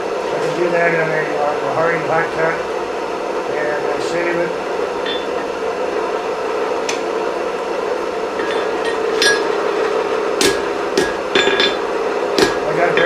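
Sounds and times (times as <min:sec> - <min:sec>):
steady hum: 0:00.0 - 0:13.0
hammer striking steel anvil: 0:05.0 - 0:05.4, 0:08.4 - 0:09.6, 0:10.4 - 0:13.0.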